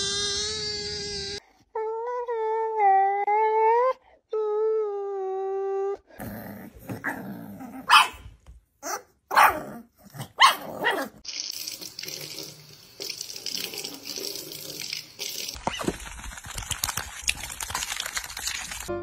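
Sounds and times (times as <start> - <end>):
faucet running into a steel sink: 11.2 - 15.6.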